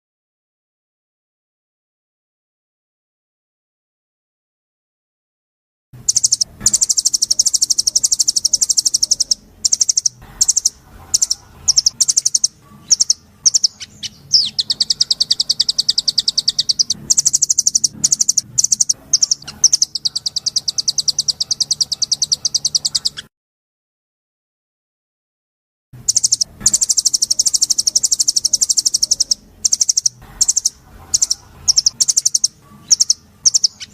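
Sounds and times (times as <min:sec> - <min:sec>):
faint low hum: 0:06.0 - 0:23.2, 0:26.0 - 0:33.9
songbird trilling: 0:06.0 - 0:23.3, 0:26.0 - 0:33.9.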